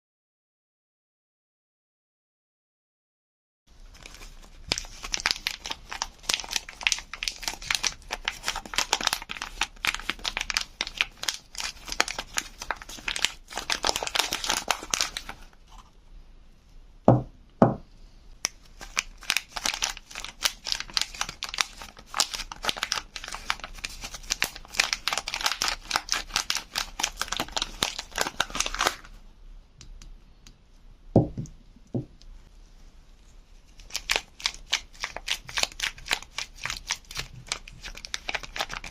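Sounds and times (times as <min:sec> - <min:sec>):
wrapping crinkling and tearing: 0:03.8 - 0:15.9, 0:18.5 - 0:29.2, 0:33.6 - 0:38.9.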